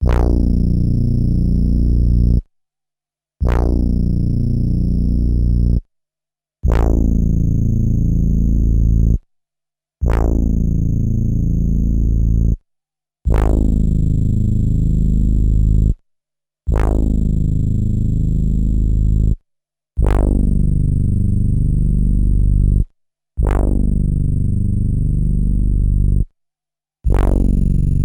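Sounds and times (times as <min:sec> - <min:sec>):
buzzy synth bass note: 0:27.1 - 0:28.0.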